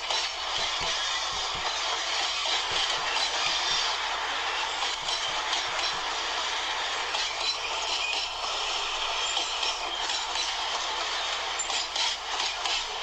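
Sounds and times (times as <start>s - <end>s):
train wheels clacking over rail joints: 0.0s - 13.0s.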